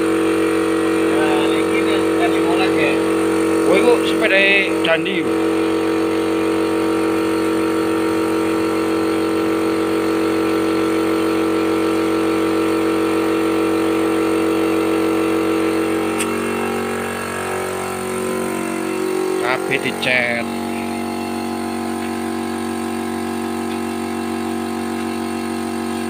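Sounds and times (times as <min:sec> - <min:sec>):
engine humming: 0:13.7 - 0:24.0.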